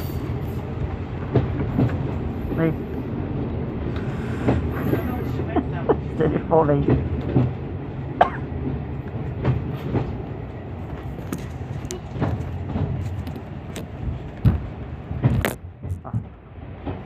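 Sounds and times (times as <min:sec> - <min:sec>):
train rumbling: 0:00.0 - 0:17.0
wheels knocking and clattering: 0:00.8 - 0:02.4, 0:08.6 - 0:17.0.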